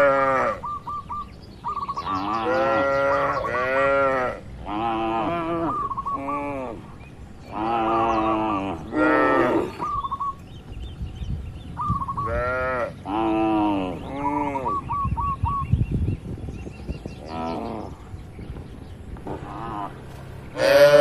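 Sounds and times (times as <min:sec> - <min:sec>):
cattle mooing: 0:00.0 - 0:00.6, 0:02.0 - 0:06.9, 0:07.5 - 0:09.8, 0:19.3 - 0:21.0.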